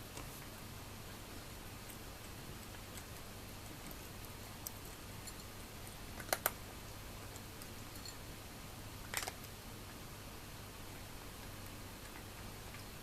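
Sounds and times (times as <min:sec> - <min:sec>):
cats crunching dry food: 0:01.8 - 0:06.6, 0:09.0 - 0:09.6.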